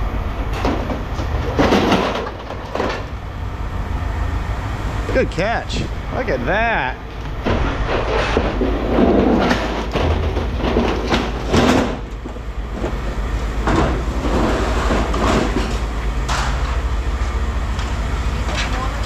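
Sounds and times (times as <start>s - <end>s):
steady low hum: 0.0s - 19.0s
scrap metal clanking: 7.4s - 12.1s, 13.6s - 16.8s.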